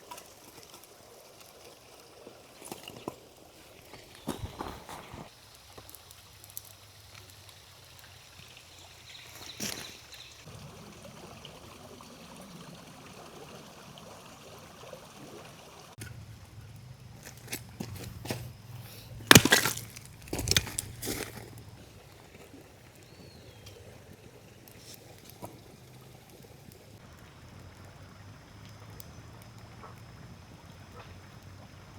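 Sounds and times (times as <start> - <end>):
creek water running: 0.0 - 31.9.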